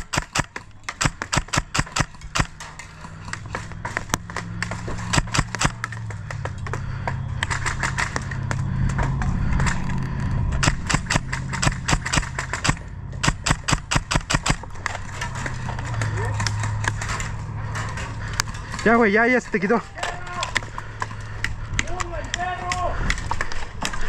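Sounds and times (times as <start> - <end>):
airsoft guns firing rapidly: 0.0 - 2.6, 5.1 - 5.9, 10.6 - 14.7.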